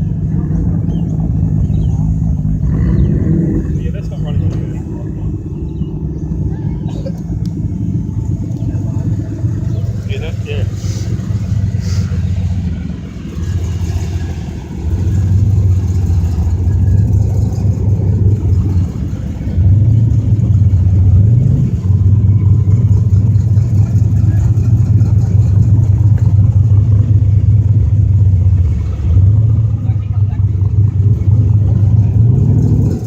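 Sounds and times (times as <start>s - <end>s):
car engine rumbling at low revs: 0.0s - 33.0s.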